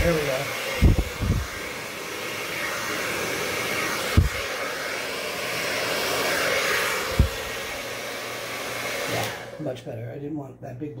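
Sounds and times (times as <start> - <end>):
electric blower running: 0.0 - 9.7
low thump: 4.1 - 4.4, 7.1 - 7.4.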